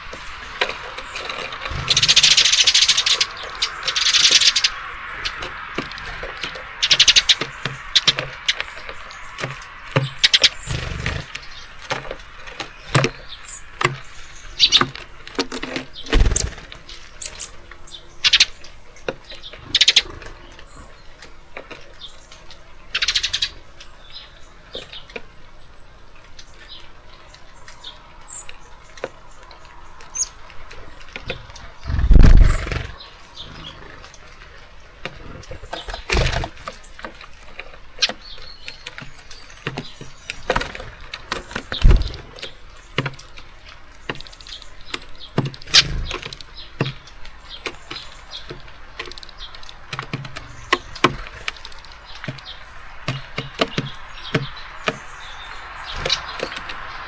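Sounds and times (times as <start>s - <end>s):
faint bird chirps: 0.0s - 37.1s
birds tapping on feeder: 0.0s - 57.0s.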